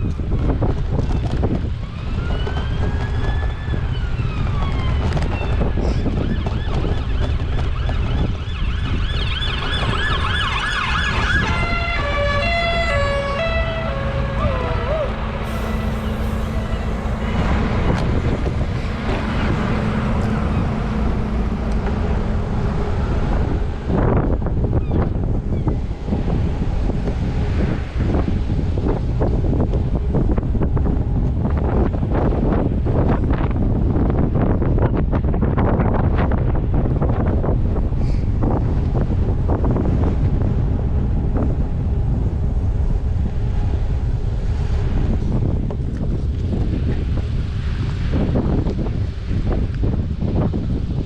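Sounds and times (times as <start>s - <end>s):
wind noise on microphone: 0.0s - 51.0s
emergency vehicle siren: 1.6s - 25.1s.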